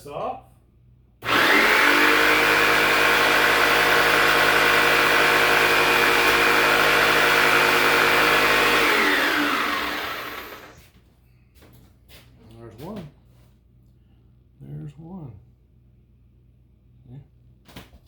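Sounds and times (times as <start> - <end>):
electric power saw whining: 1.2 - 10.8.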